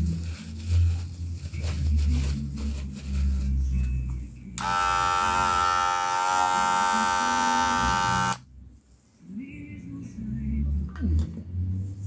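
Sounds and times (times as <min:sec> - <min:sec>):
electric hair clipper buzzing: 0:04.6 - 0:08.4.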